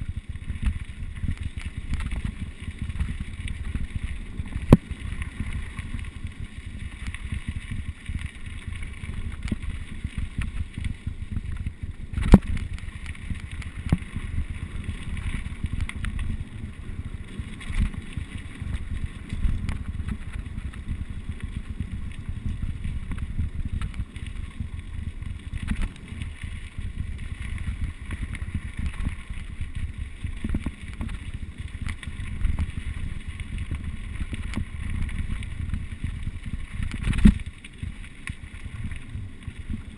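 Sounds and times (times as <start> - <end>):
tyres rumbling on rough ground: 0.0 - 39.9.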